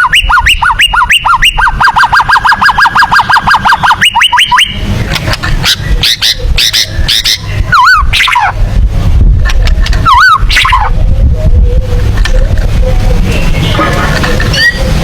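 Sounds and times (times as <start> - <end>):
bird singing whistled phrases: 0.0 - 4.8, 14.5 - 14.9.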